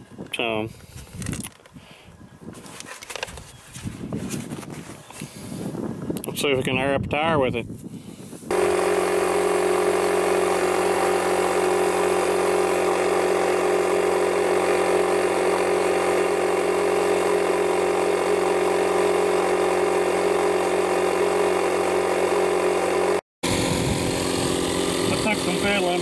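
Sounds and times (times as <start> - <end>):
air compressor humming: 8.2 - 26.0.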